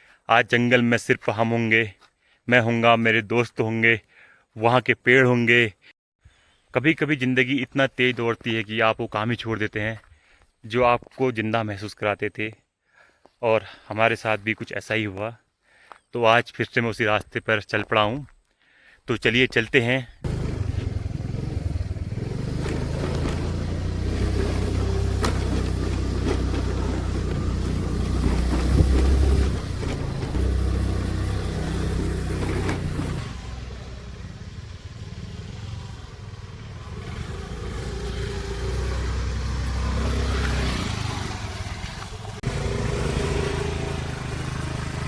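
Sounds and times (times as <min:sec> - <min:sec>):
vehicle engine running: 0:20.2 - 0:45.0.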